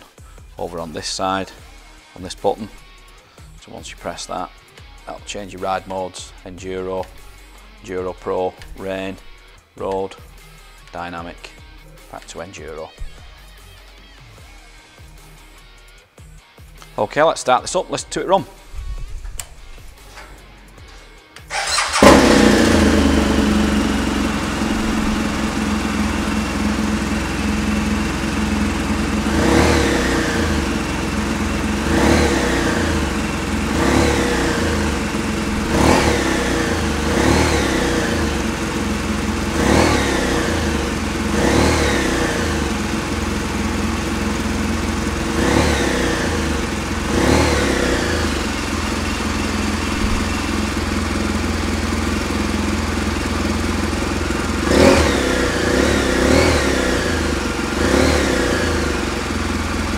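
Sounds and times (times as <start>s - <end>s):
motorcycle engine starting and idling: 19.0s - 59.9s
motorcycle throttle revs: 21.5s - 59.9s.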